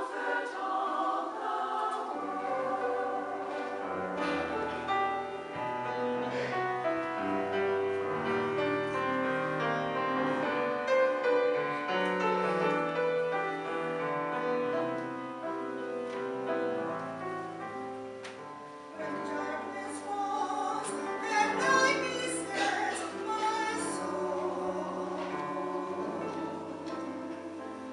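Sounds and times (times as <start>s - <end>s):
choir singing: 0.0s - 6.5s, 18.9s - 27.9s.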